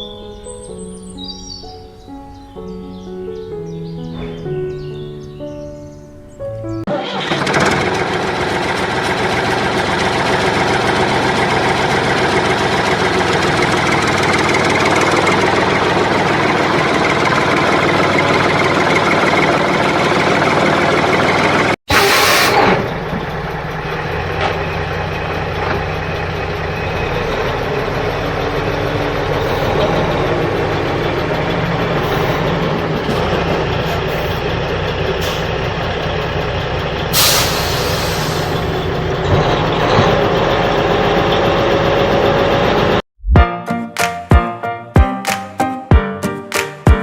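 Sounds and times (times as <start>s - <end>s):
truck engine running: 6.9s - 43.0s
air brake hiss: 21.9s - 22.8s, 35.2s - 35.6s, 37.1s - 38.8s.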